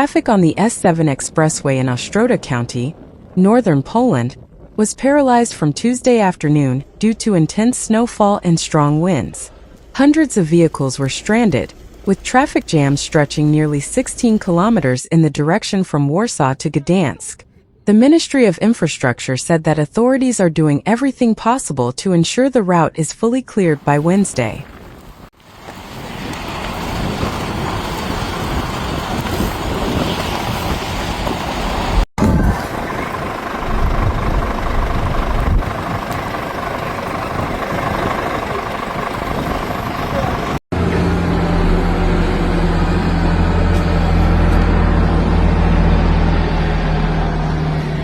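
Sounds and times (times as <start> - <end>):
traffic rumble: 0.0 - 15.0, 23.6 - 48.0
vehicle engine idling: 31.5 - 48.0.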